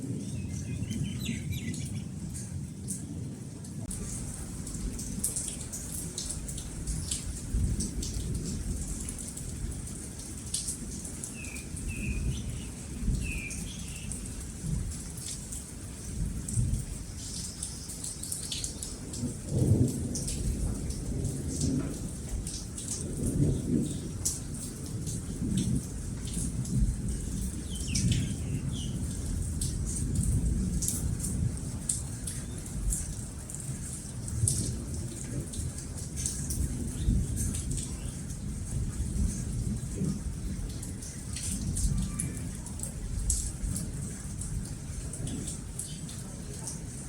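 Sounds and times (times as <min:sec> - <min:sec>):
steady rain: 0:00.0 - 0:47.0
bird chirps: 0:00.3 - 0:02.1
thunder rumbling: 0:03.8 - 0:15.4, 0:16.0 - 0:33.6, 0:34.2 - 0:47.0.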